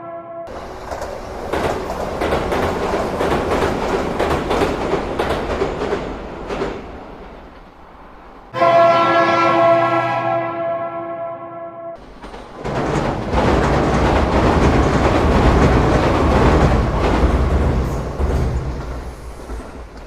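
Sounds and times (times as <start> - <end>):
loud train whistle: 0.0 - 0.5, 8.5 - 12.0.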